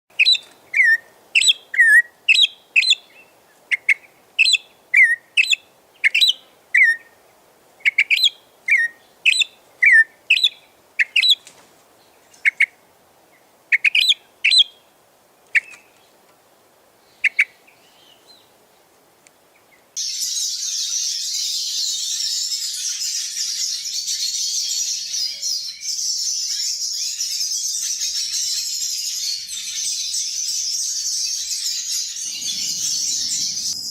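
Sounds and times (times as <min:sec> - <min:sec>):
high twittering of many birds: 0:19.6 - 0:33.9
bird call notes: 0:31.9 - 0:33.9.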